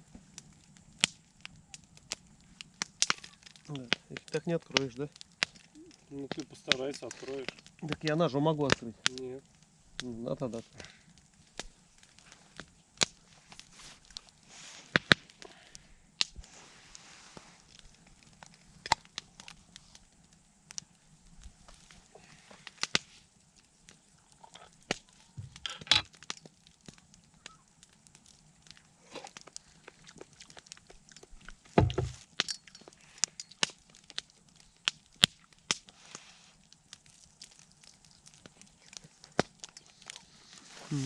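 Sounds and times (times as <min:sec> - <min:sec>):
campfire crackling and popping: 0:00.0 - 0:41.0
knocks in campfire: 0:00.2 - 0:09.2, 0:14.9 - 0:16.6, 0:23.9 - 0:36.0, 0:39.3 - 0:40.2.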